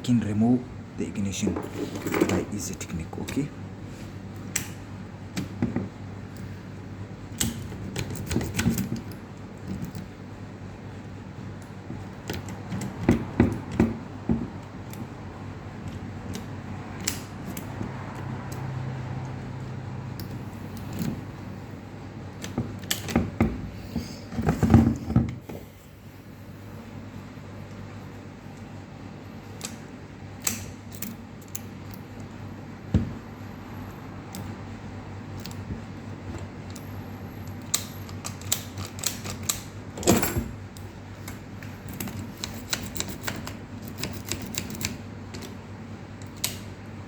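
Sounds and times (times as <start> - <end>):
key rattling in ignition lock: 37.5 - 40.6, 41.8 - 45.6.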